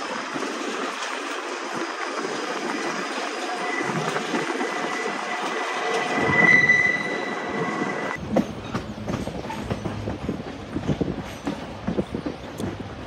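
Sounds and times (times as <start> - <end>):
train wheel squeal: 3.4 - 10.1
train wheels clicking on rails: 7.6 - 13.0.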